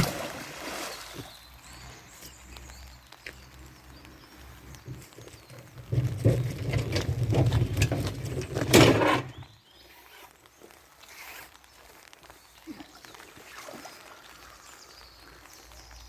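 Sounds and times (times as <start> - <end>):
rain pattering on an umbrella: 1.4 - 5.8, 9.5 - 16.0.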